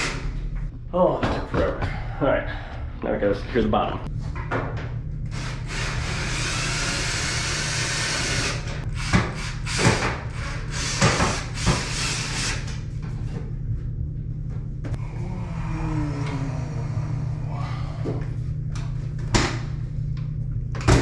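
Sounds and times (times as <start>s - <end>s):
power drill driving screws: 5.4s - 12.7s.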